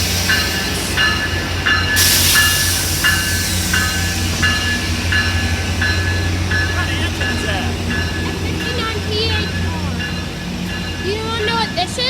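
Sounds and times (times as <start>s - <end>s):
air hiss: 0.0s - 5.6s
bell ringing: 0.0s - 12.0s
diesel locomotive rumbling: 0.0s - 12.0s.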